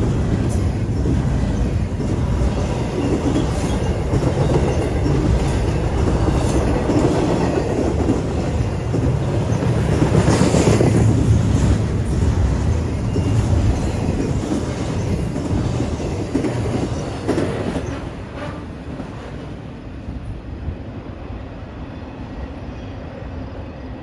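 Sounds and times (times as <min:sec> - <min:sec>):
train car clanks: 0:00.0 - 0:19.2
train wheels rumbling on rail: 0:00.0 - 0:23.8.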